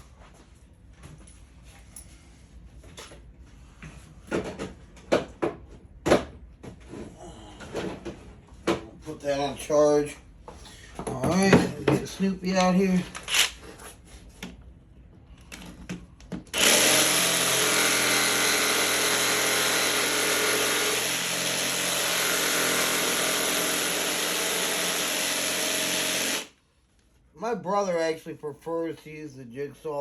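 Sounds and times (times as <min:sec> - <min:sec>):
power tool running: 0:16.5 - 0:26.6.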